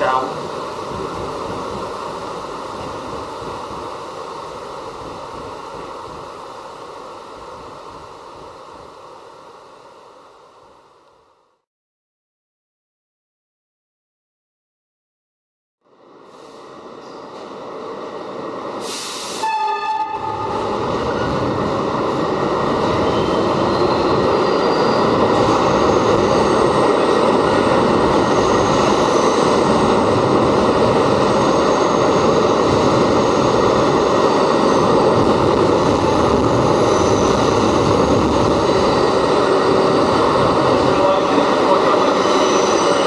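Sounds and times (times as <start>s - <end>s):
subway train running: 0.0s - 11.6s, 15.8s - 43.0s
train horn blast: 19.4s - 20.7s.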